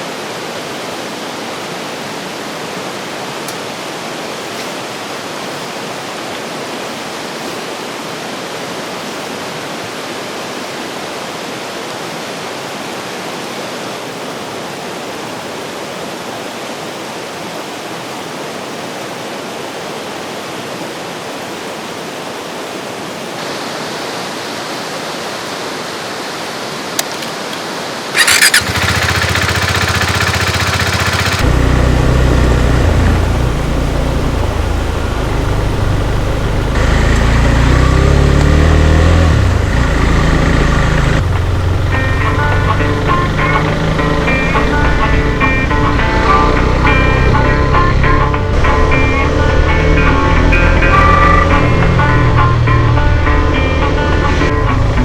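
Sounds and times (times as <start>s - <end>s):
rushing river: 0.0s - 28.9s
electric starter whining: 27.0s - 27.5s, 28.2s - 37.5s
motorcycle engine idling: 28.2s - 37.5s, 39.4s - 55.0s.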